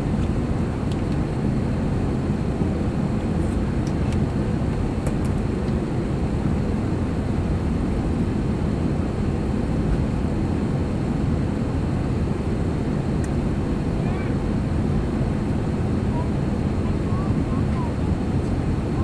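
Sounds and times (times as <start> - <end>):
jet engine and airflow cabin noise: 0.0 - 19.0.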